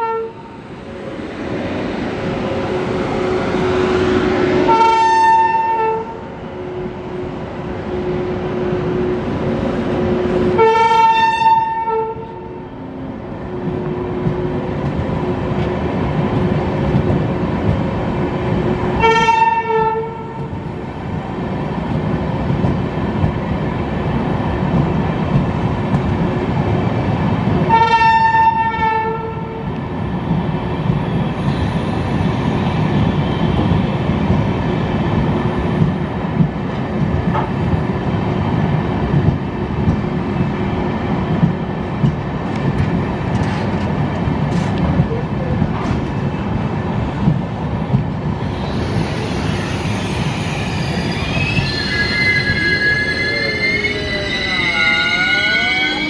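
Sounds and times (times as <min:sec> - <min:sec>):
train horn blasts: 0:00.0 - 0:00.5, 0:03.8 - 0:06.2, 0:10.5 - 0:12.6, 0:19.0 - 0:20.5, 0:27.6 - 0:29.7
train wheels rumbling on rails: 0:00.0 - 0:56.0.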